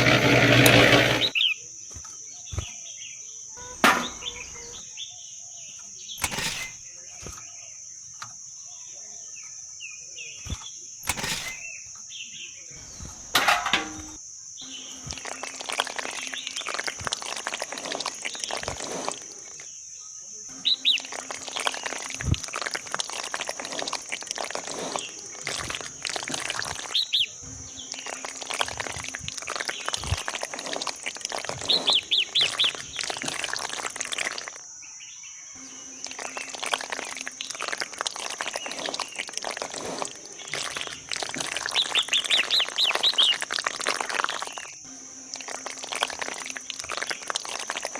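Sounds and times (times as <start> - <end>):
small clicks and scrapes: 0.0 - 2.8, 5.8 - 7.5, 10.4 - 12.1, 15.0 - 19.8, 20.9 - 27.2, 27.8 - 34.6, 36.1 - 44.8
birds chirping in trills: 1.2 - 13.3, 18.2 - 22.2, 24.9 - 47.9.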